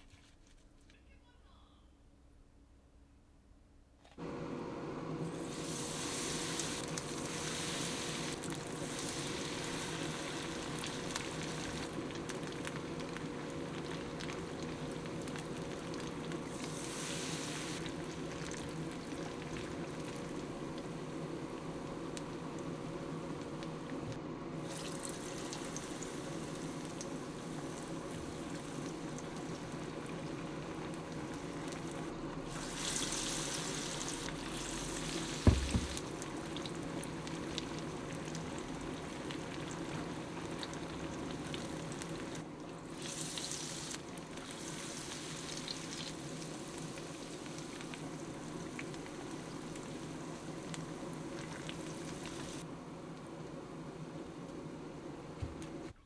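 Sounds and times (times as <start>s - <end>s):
food sizzling in a pan: 5.2s - 22.6s, 24.6s - 52.6s
sharp knock: 35.5s - 36.0s.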